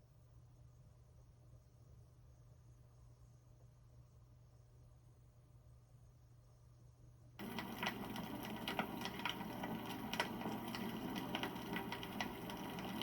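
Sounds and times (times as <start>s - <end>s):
campfire crackling and popping: 7.4s - 13.0s.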